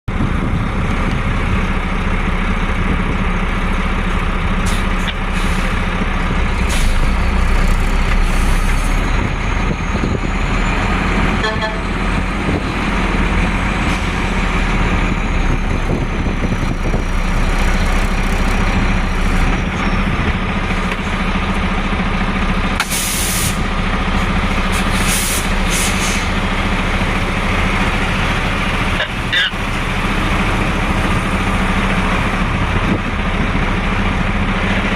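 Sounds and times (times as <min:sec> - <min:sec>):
road traffic: 0:00.0 - 0:34.9
heavy trucks passing: 0:00.1 - 0:34.9
short air hisses: 0:22.8 - 0:23.6, 0:24.9 - 0:26.3.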